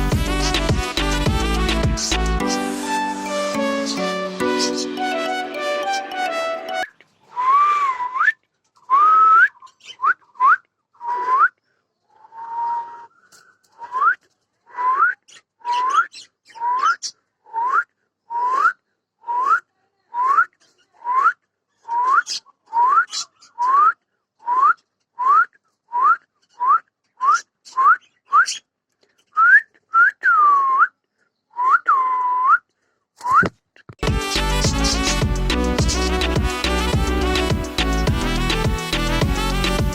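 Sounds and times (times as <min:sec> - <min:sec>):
rising whistled notes: 0:01.7 - 0:08.0.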